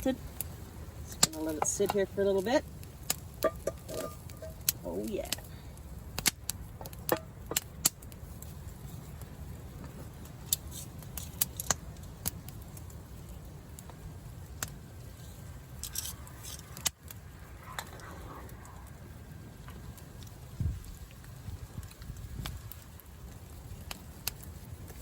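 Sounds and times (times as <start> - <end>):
campfire crackling and popping: 0.0 - 25.0
storm wind rumbling: 12.8 - 23.8.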